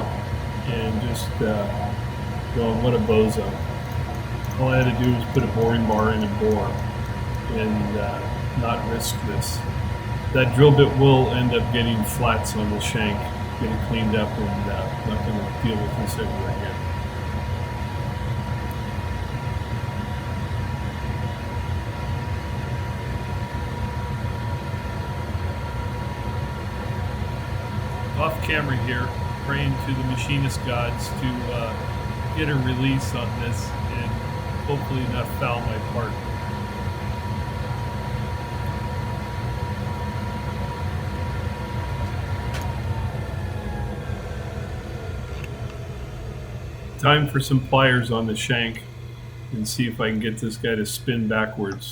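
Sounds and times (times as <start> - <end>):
low mechanical hum: 0.0 - 51.9
thin steady whine: 0.0 - 51.9
click: 3.8 - 7.5, 42.5 - 42.7.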